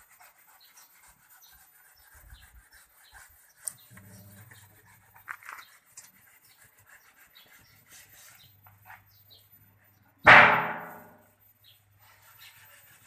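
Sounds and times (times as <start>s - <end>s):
metallic clang: 10.3s - 11.2s.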